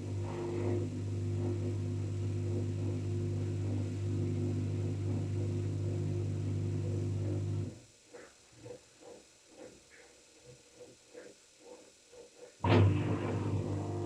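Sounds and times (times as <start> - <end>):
washing machine humming: 0.0 - 7.8, 12.6 - 14.0.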